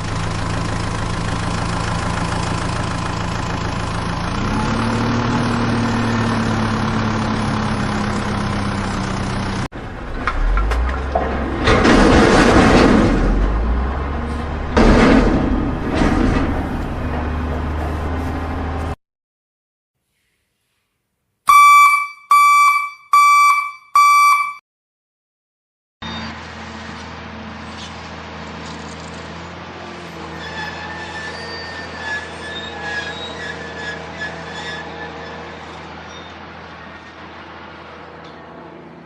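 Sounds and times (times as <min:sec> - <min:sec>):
vehicle engine surging: 0:00.0 - 0:19.0
short vehicle horn honks: 0:21.5 - 0:24.6.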